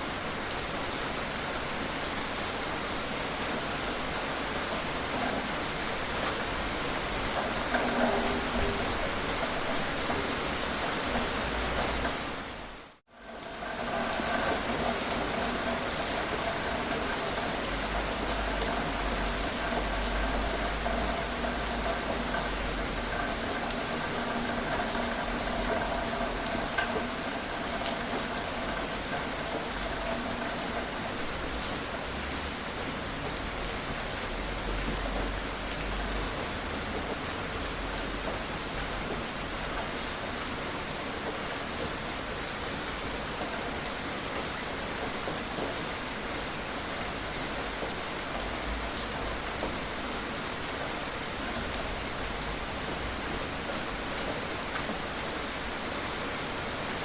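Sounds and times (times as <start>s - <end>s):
gentle rain pattering: 0.0s - 57.0s.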